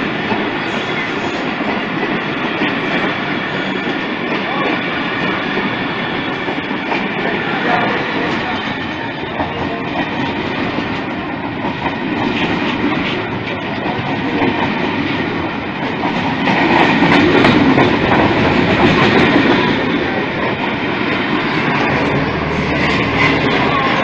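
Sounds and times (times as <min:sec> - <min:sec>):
train wheels clattering on rails: 0:00.0 - 0:24.0.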